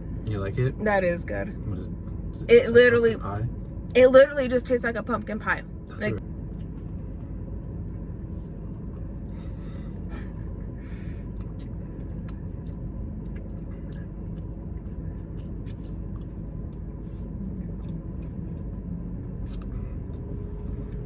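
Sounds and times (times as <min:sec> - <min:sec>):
car cabin engine rumble: 0:00.0 - 0:21.0.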